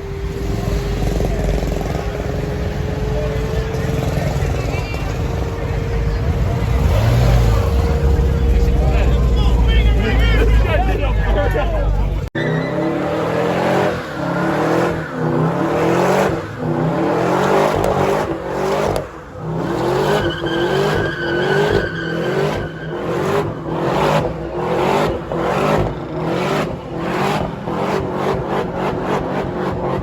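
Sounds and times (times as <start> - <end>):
car engine revving: 0.0 - 30.0
tires squealing and skidding: 12.4 - 30.0.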